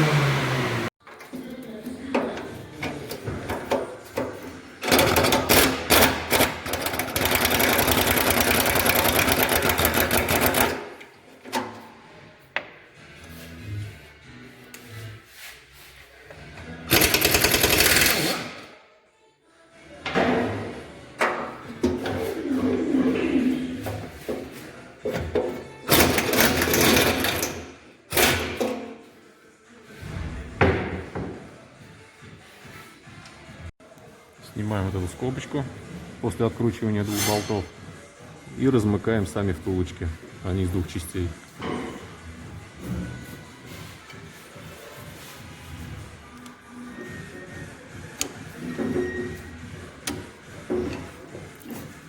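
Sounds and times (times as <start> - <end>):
impact wrench running: 4.8 - 10.8, 16.9 - 18.6
pneumatic wrench rattling: 16.9 - 18.6.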